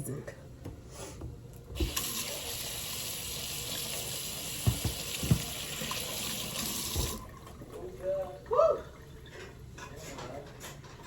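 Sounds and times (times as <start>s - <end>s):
kitchen tap running: 1.7s - 9.4s
dull knocks in sink: 4.6s - 5.7s.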